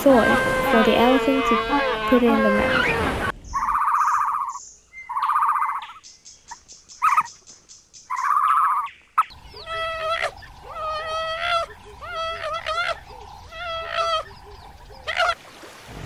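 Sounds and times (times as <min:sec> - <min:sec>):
high whining animal calls: 0:00.0 - 0:05.8, 0:09.5 - 0:14.4
buzzy pulsed animal calls: 0:00.0 - 0:06.0, 0:08.1 - 0:15.4.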